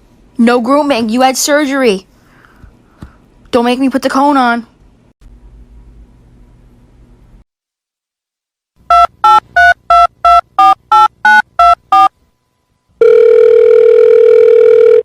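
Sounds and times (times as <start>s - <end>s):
touch-tone keypad beeps: 8.9s - 12.1s
steady telephone line tone: 12.9s - 15.0s.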